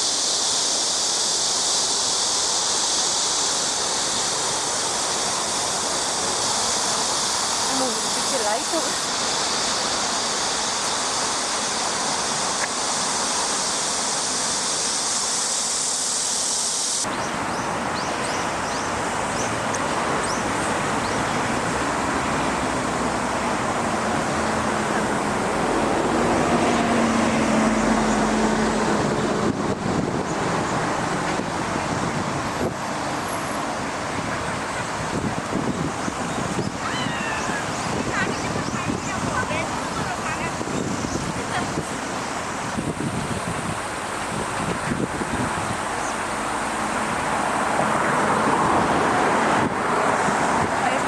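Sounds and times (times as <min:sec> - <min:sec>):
road traffic noise: 0:00.0 - 0:51.0
rushing floodwater: 0:00.0 - 0:51.0
vehicle passing: 0:17.1 - 0:36.4, 0:42.8 - 0:51.0.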